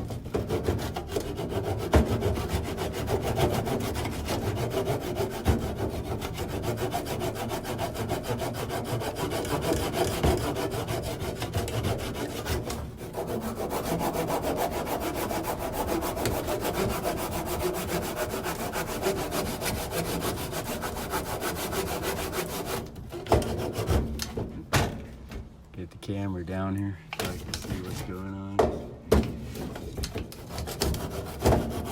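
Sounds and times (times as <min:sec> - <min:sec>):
hand tool scraping wood: 0:00.0 - 0:24.6, 0:27.2 - 0:28.7, 0:29.5 - 0:31.9.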